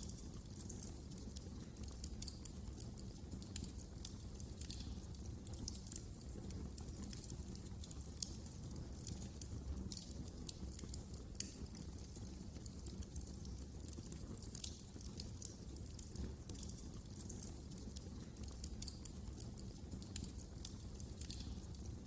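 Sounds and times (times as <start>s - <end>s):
fireplace flames rumbling: 0.0s - 22.0s
wood fire crackling: 0.0s - 22.0s.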